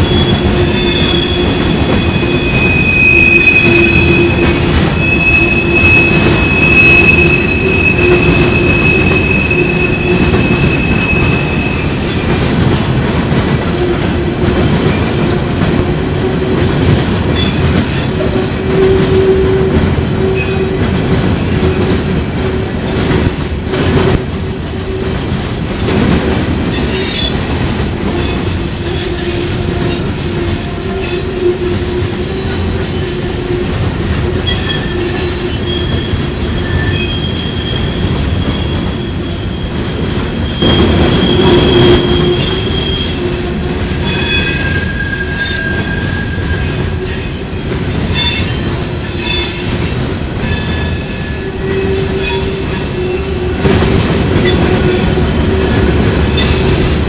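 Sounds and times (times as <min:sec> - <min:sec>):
train wheels squealing on rails: 0:00.0 - 0:12.6, 0:16.1 - 0:24.1, 0:24.7 - 0:57.0
freight train rumble: 0:00.0 - 0:57.0.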